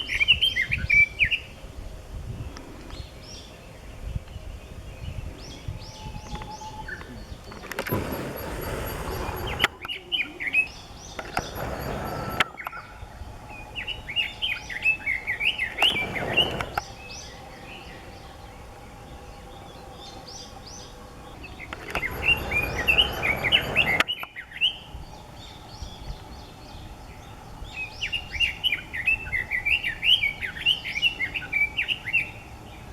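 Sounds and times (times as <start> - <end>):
bird warbling song: 0.0 - 1.6, 2.3 - 32.9
rushing noise: 7.4 - 9.9, 10.6 - 24.1.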